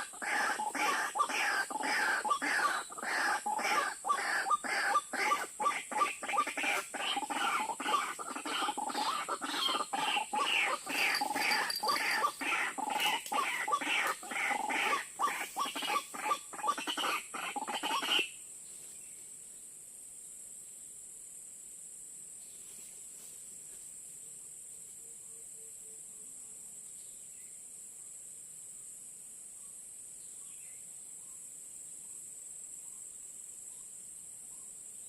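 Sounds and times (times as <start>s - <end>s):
waterhen calling harshly: 0.0s - 18.3s
high-pitched hiss: 7.3s - 13.4s.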